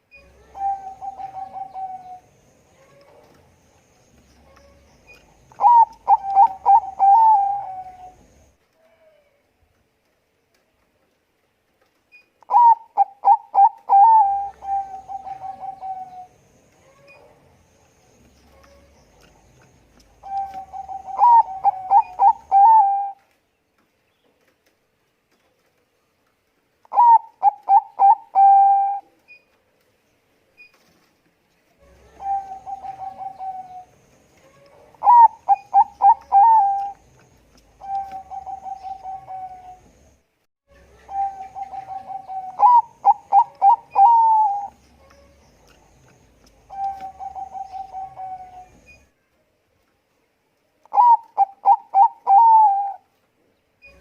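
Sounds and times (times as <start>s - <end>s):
dove cooing: 0.2s - 3.4s, 4.5s - 8.3s, 12.5s - 17.3s, 18.5s - 23.2s, 26.9s - 29.1s, 31.8s - 37.1s, 37.7s - 40.0s, 40.8s - 48.9s, 50.8s - 53.0s.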